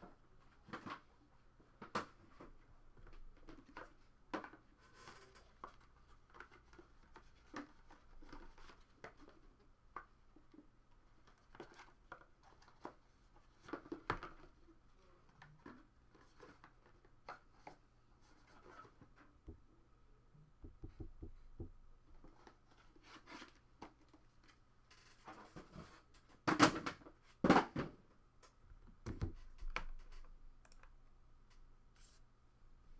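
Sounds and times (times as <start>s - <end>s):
objects handled on a desk: 20.6s - 22.4s, 29.0s - 30.3s.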